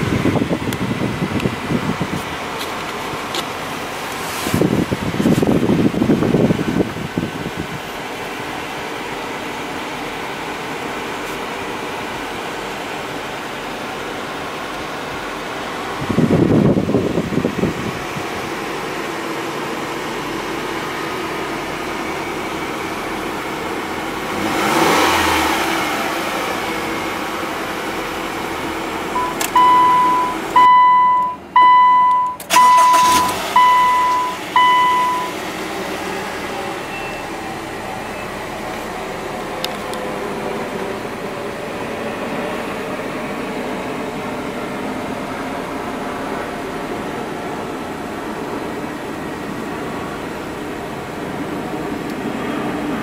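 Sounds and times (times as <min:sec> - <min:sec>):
car engine idling and revving: 0:00.0 - 0:53.0
short high electronic beeps: 0:36.9 - 0:37.4.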